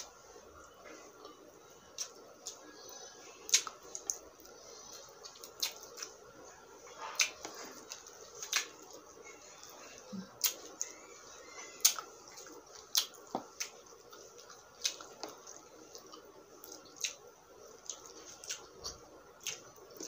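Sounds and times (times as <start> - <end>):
lip smacks: 3.5 - 4.2.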